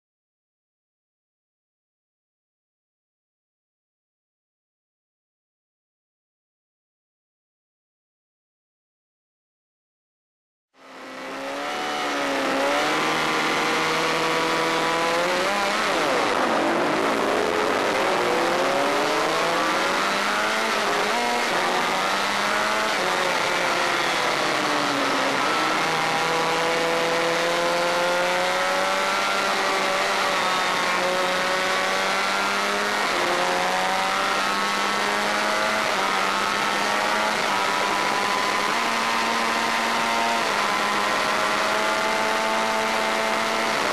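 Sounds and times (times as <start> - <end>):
motorcycle engine revving: 10.8 - 43.9
steady rushing noise: 15.6 - 21.7.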